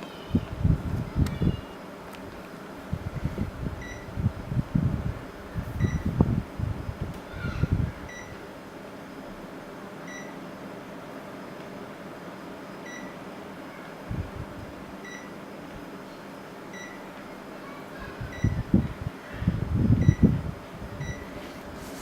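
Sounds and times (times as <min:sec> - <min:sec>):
air conditioner fan hiss: 0:00.0 - 0:22.0
air conditioner short high beeps: 0:03.8 - 0:04.2, 0:05.7 - 0:06.2, 0:08.0 - 0:08.5, 0:10.0 - 0:10.4, 0:12.6 - 0:13.3, 0:14.6 - 0:15.5, 0:16.7 - 0:17.1, 0:18.1 - 0:18.8, 0:20.0 - 0:20.4, 0:21.0 - 0:21.5.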